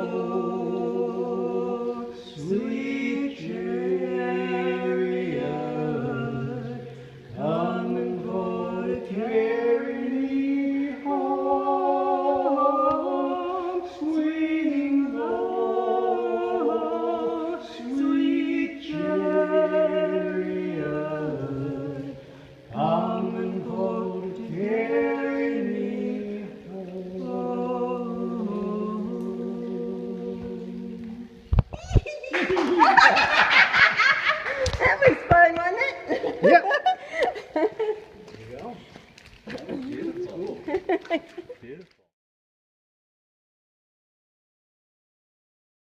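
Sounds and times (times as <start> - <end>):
man and woman singing: 0.0 - 31.5.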